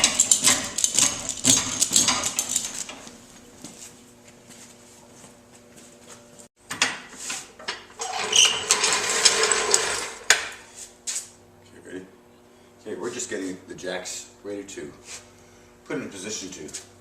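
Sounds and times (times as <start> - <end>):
chain clinking and clattering: 0.0 - 3.0.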